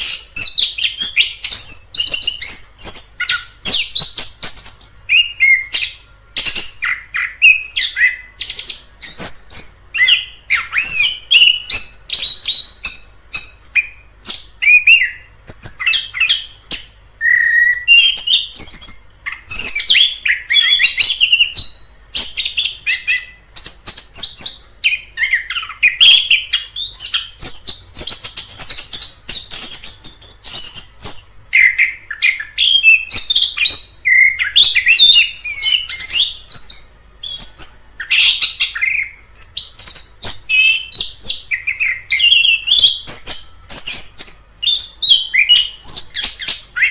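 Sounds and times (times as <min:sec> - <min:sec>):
thrush singing whistles and chirps: 0:00.0 - 0:46.9.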